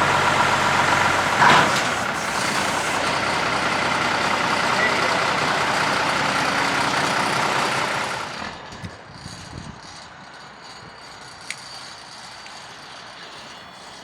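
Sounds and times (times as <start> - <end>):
diesel truck engine idling: 0.0 - 8.7.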